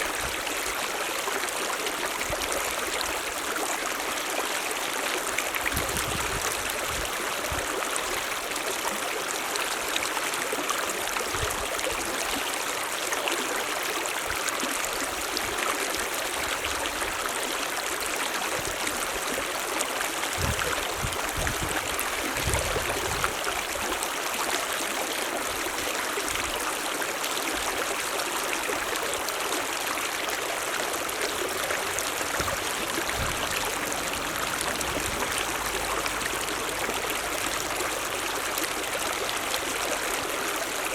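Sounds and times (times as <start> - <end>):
mountain stream rushing: 0.0 - 40.9.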